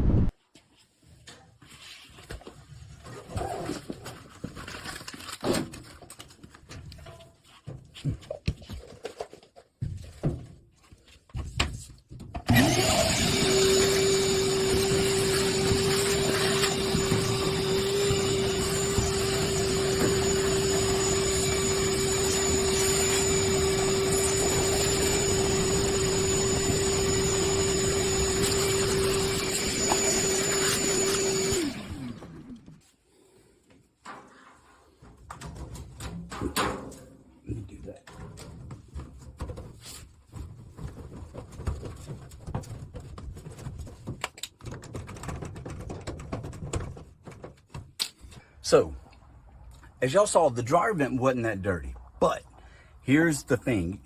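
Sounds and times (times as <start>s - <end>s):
electric leaf blower whine: 12.5s - 32.8s.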